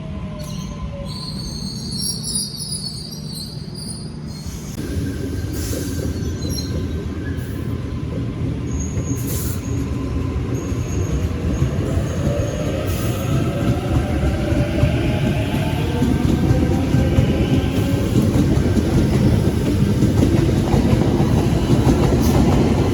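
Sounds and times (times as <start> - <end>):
faint high squeals: 0.4 - 4.8
train rumble: 4.2 - 22.9.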